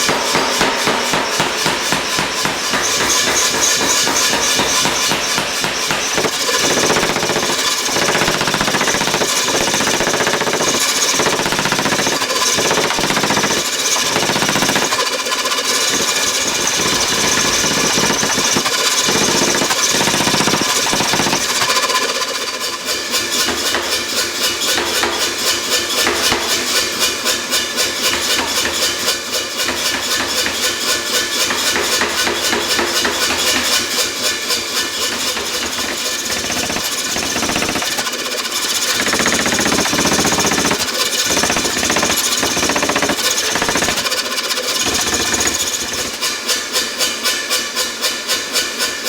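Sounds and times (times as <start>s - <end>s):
hammer blows on ringing metal: 0.0s - 6.6s.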